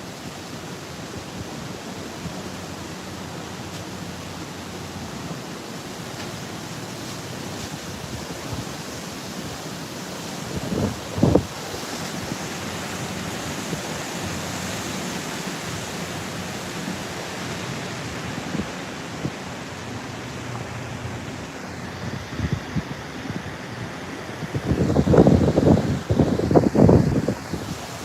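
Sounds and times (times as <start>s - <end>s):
surf: 0.0s - 28.0s
wind buffeting microphone: 10.3s - 14.7s, 17.1s - 28.0s
strong wind rushing: 10.4s - 12.3s, 18.2s - 28.0s.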